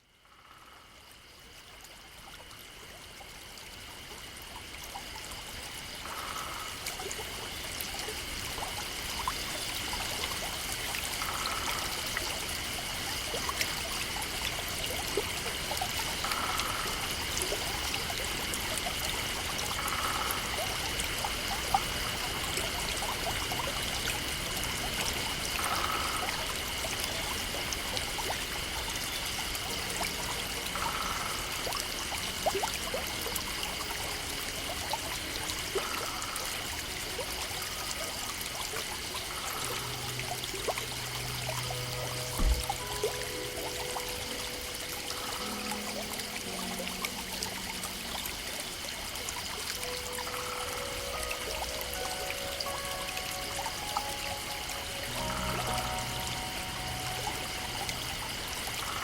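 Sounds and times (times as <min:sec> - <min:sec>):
stream water trickling: 0:00.0 - 0:59.0
steady high-pitched tone: 0:39.2 - 0:59.0.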